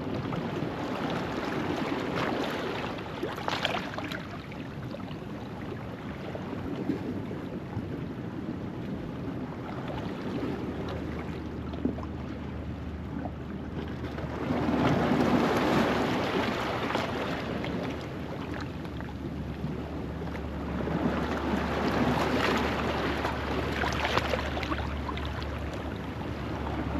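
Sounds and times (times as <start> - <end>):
waves washing over rocks: 14.3 - 26.9.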